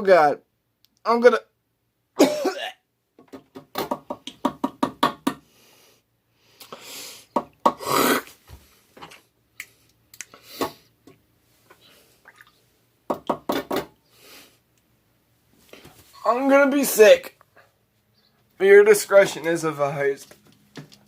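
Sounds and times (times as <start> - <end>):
man gagging and dry-heaving: 2.2 - 2.8, 7.7 - 8.4.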